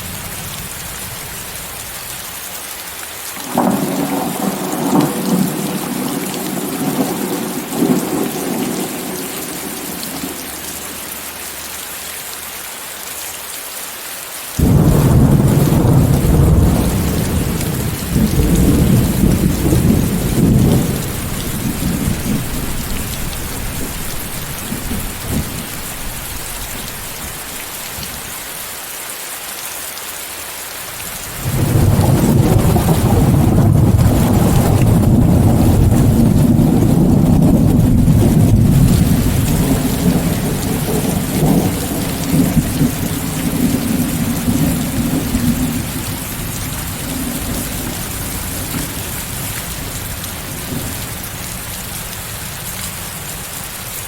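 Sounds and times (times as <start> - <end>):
steady rain hiss: 0.0 - 54.0
rolling thunder: 3.4 - 11.0, 14.6 - 27.4, 31.4 - 51.2.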